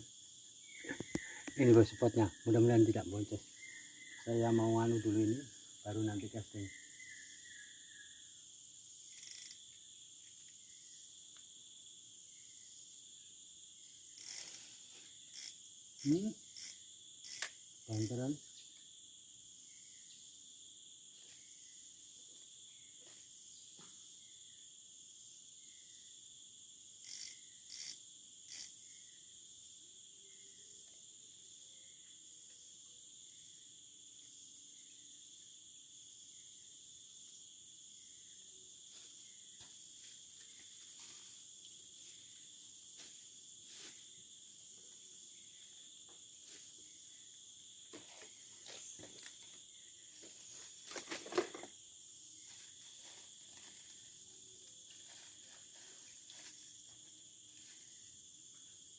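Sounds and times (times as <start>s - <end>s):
forest insects chorus: 0.0s - 58.9s
faint chirp: 0.7s - 2.2s.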